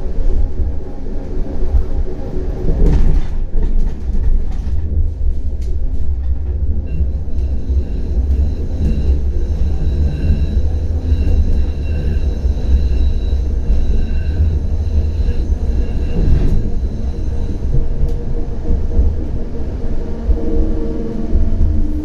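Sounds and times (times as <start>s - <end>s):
tram rumbling: 0.0s - 22.0s
high whining tones: 6.6s - 22.0s.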